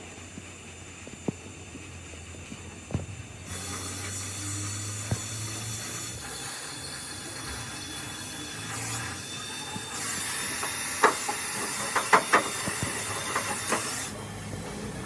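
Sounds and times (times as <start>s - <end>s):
loud compressed air hiss: 3.1s - 15.0s.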